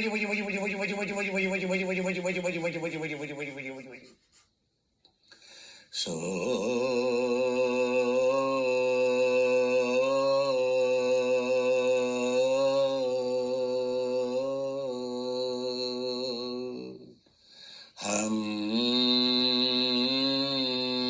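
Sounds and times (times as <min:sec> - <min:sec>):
person chanting one long note: 0:06.1 - 0:17.1.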